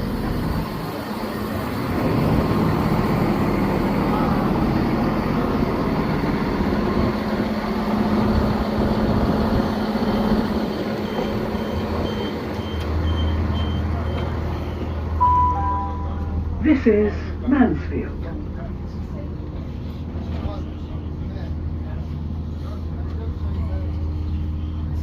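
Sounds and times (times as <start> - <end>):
train rumbling: 0.0 - 25.0
high beeping: 11.1 - 16.6
deeper hum: 15.2 - 17.5.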